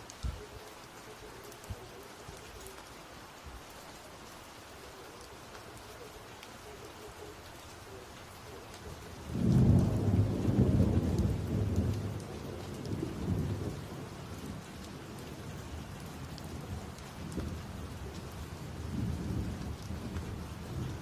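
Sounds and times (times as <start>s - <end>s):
steady rain hissing: 0.0s - 21.0s
thunder rumbling: 4.9s - 21.0s.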